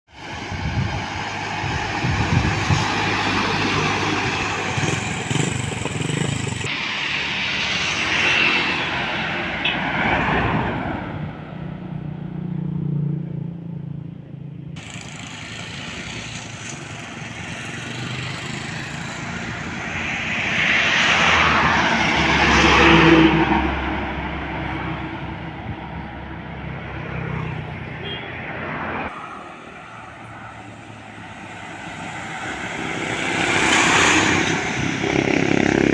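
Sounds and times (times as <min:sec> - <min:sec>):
heavy trucks driving past: 0:00.2 - 0:13.7, 0:14.7 - 0:35.9.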